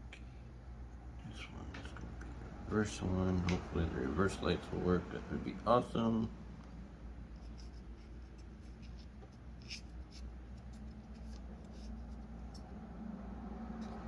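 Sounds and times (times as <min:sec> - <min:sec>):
low steady hum: 0:00.0 - 0:14.0
clicks and scratching of wiring: 0:07.2 - 0:12.8.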